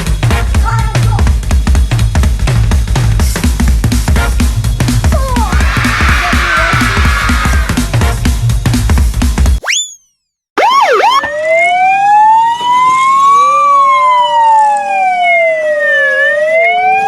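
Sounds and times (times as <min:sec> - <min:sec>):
electronic police siren: 0:10.6 - 0:17.0.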